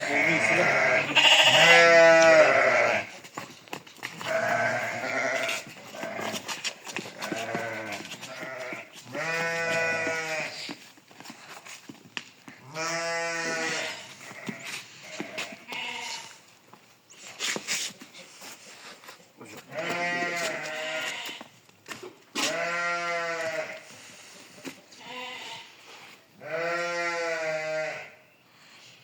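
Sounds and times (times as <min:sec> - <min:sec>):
sheep bleating: 0:00.0 - 0:03.2, 0:04.2 - 0:10.7, 0:12.6 - 0:16.4, 0:19.7 - 0:21.5, 0:22.4 - 0:23.9, 0:25.0 - 0:25.8, 0:26.4 - 0:28.2.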